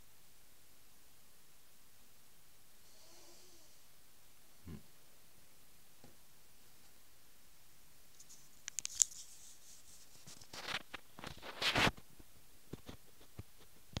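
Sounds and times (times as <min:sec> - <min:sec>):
scraping rustles: 0:08.2 - 0:13.8.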